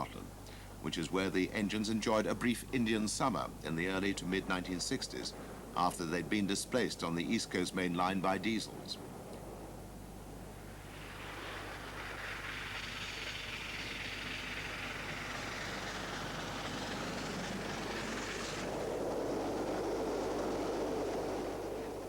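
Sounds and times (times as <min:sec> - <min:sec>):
train running past: 0:10.6 - 0:22.0.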